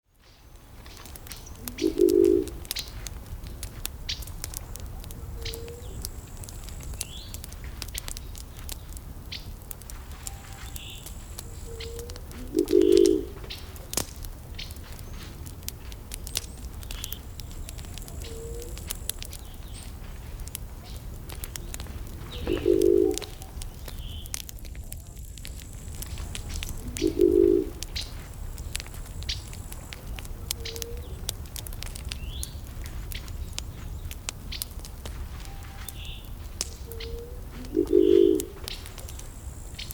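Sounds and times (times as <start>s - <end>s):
wood fire crackling: 0.0s - 39.9s
low-pitched bird call: 1.5s - 2.6s, 10.2s - 13.7s, 17.8s - 18.9s, 22.3s - 24.3s, 26.7s - 28.1s, 36.9s - 38.6s
faint high bird chirps: 10.2s - 11.0s.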